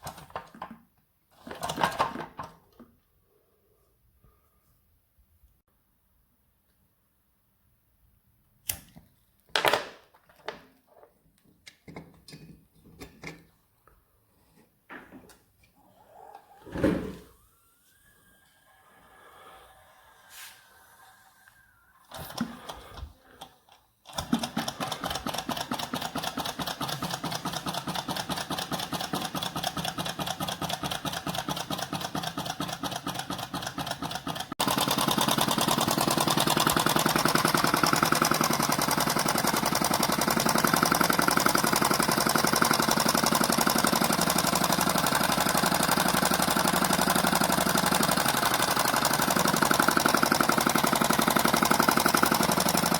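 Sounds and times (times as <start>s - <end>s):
small engine rapid mechanical clatter: 0.0s - 2.7s, 15.8s - 52.9s.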